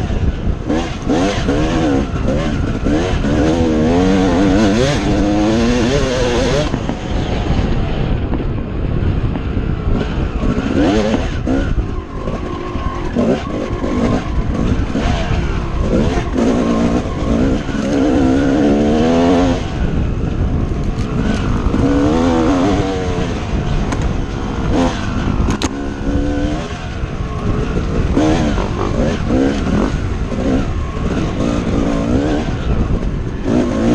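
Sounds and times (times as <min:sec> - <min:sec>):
dirt bike engine revving: 0:00.0 - 0:33.9
wind noise rumble: 0:00.0 - 0:33.9.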